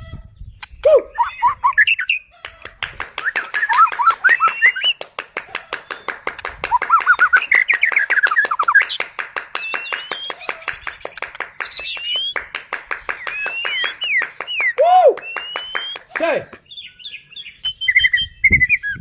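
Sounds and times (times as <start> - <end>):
bird singing trills and whistles: 0.0 - 2.4, 3.2 - 5.0, 5.8 - 19.0.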